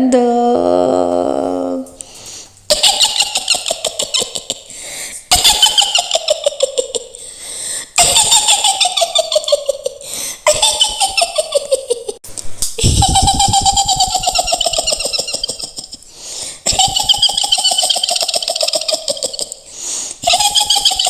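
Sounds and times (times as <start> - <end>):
woman's high-pitched cackling laugh: 2.7 - 4.7, 5.3 - 7.2, 8.0 - 12.2, 12.8 - 21.0.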